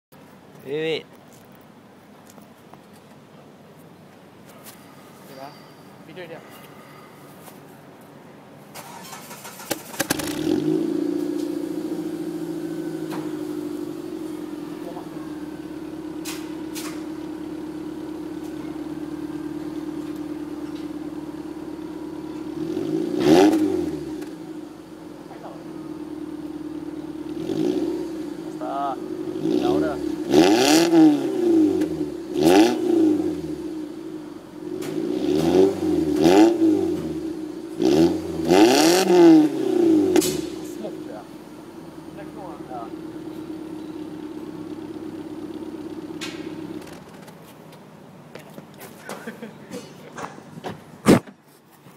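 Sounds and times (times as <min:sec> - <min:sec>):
car engine cranking: 0:08.7 - 0:14.0, 0:25.7 - 0:47.4
car engine idling: 0:08.7 - 0:47.3.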